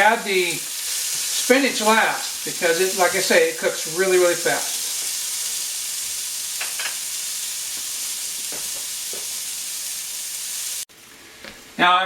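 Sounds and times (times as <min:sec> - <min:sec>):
carrots sizzling in a pan: 0:00.0 - 0:12.0.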